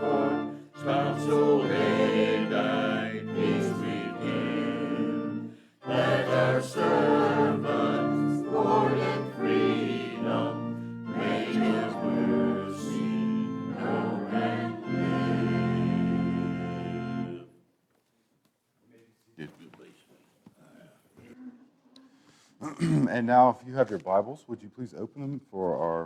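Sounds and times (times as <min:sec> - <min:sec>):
choir singing a hymn: 0:00.0 - 0:17.5
instrumental accompaniment: 0:00.0 - 0:17.5.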